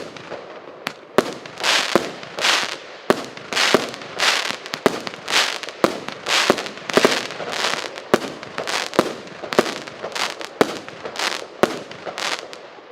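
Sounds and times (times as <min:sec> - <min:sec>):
fireworks popping: 0:00.0 - 0:12.9.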